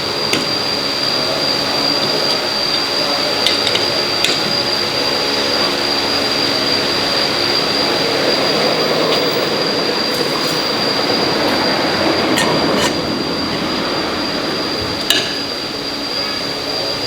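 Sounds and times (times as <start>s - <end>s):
power tool high whine: 0.0s - 17.0s
harsh grinding noise: 3.4s - 16.2s.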